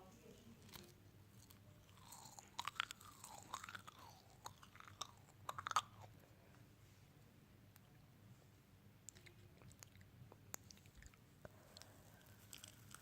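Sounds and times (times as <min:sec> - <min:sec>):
crunchy chewing and biting: 0:00.6 - 0:06.2, 0:09.1 - 0:13.0.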